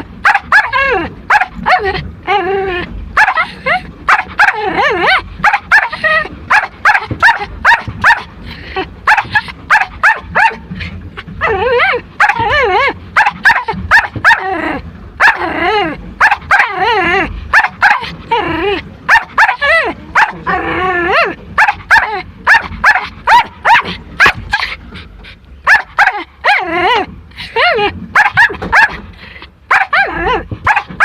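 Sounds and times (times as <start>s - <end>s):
dog whining: 0.3s - 8.2s, 9.1s - 29.0s, 29.7s - 31.0s
small dog yapping: 4.1s - 8.3s, 9.1s - 10.6s, 11.4s - 14.5s, 16.2s - 18.2s, 19.1s - 20.6s, 21.2s - 24.8s, 25.6s - 27.1s, 28.2s - 29.0s, 29.7s - 31.0s.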